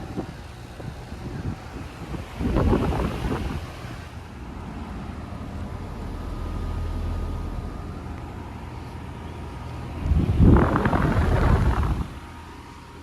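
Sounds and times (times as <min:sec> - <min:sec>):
air conditioner unit humming: 0:00.0 - 0:13.0
loud rushing noise: 0:09.9 - 0:12.4.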